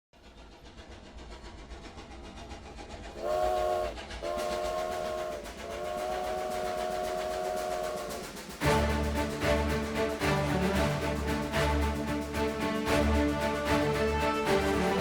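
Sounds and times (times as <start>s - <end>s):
rhythmic clatter of moving train: 0.2s - 15.0s
multi-note train whistle: 3.2s - 15.0s
music: 6.9s - 15.0s.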